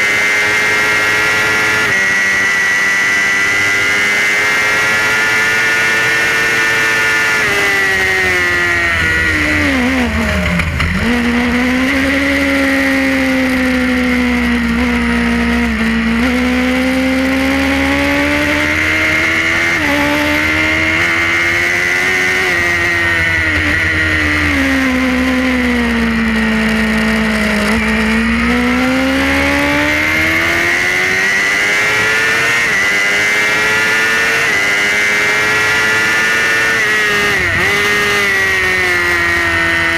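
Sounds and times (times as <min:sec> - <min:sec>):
racing motorcycle engine: 0:00.0 - 0:39.9.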